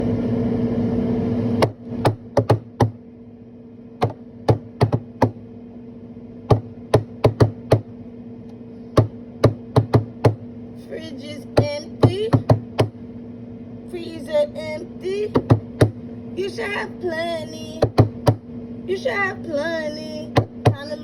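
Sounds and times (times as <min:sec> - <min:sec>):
steady low hum: 0:00.0 - 0:21.0
sharp rhythmic taps: 0:01.6 - 0:03.0, 0:04.0 - 0:05.4, 0:06.5 - 0:07.9, 0:09.0 - 0:10.4, 0:11.6 - 0:13.0, 0:15.3 - 0:16.0, 0:17.8 - 0:18.4, 0:20.3 - 0:20.9.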